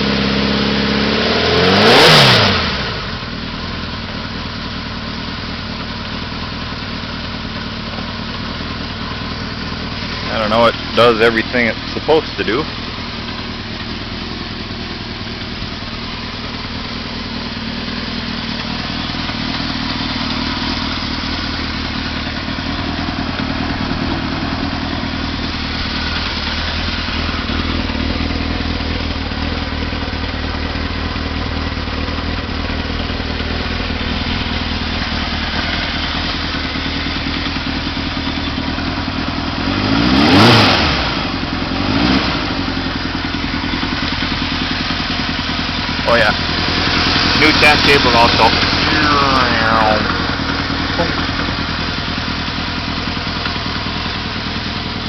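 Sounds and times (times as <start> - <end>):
motorcycle engine idling: 0.0 - 55.0
engine throttle blips: 7.9 - 55.0.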